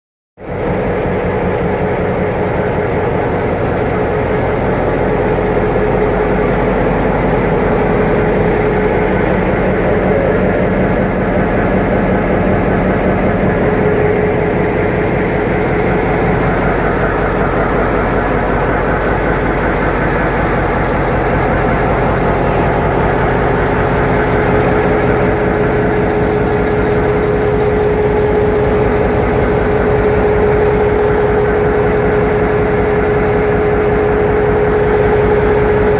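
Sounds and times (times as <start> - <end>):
diesel locomotive engine running: 0.4 - 35.9
steady whine: 0.4 - 35.9.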